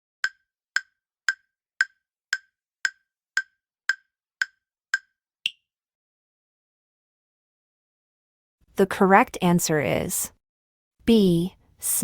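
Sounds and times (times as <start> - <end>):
countdown timer ticks: 0.2 - 5.6.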